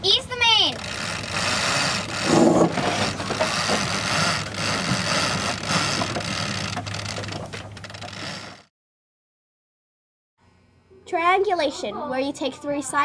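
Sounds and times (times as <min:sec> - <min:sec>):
boat knocks and rattles: 0:00.1 - 0:08.7.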